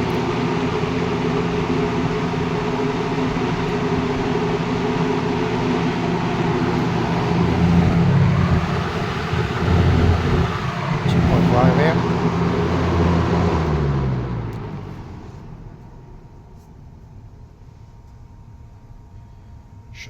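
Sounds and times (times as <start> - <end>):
box fan air rushing: 0.0 - 13.8
fan motor hum: 0.0 - 20.0.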